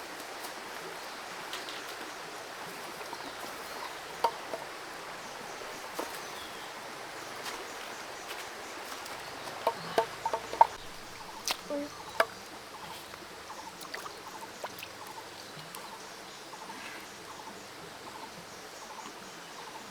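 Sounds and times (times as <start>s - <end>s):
creek running: 0.0s - 19.4s.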